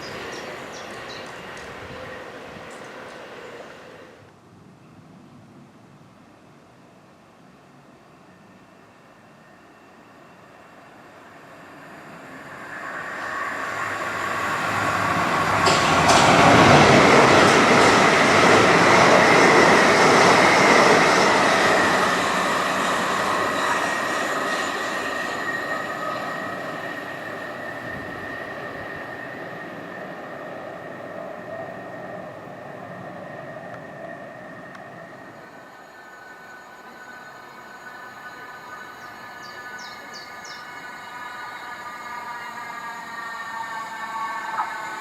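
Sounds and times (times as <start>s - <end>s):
electric train passing: 0.0s - 4.4s, 6.0s - 45.0s
wheels clattering over rails: 14.0s - 27.2s
thin high whine: 32.8s - 45.0s.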